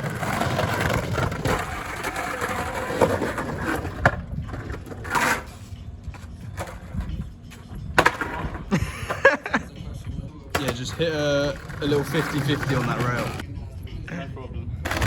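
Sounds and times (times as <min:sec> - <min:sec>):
skateboard wheels rolling on wet pavement: 0:00.0 - 0:04.2
skateboard grinding rail: 0:00.0 - 0:07.3, 0:10.6 - 0:13.4.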